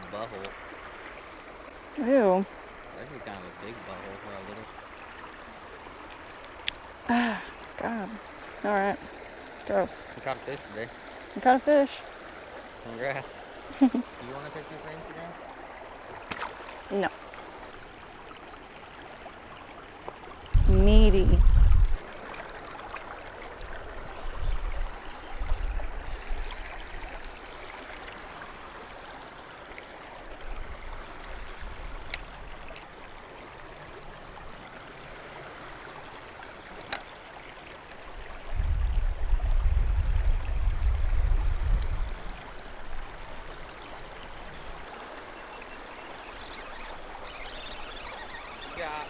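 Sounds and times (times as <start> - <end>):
flowing river water: 0.0 - 49.0
faint clicks: 32.0 - 32.9.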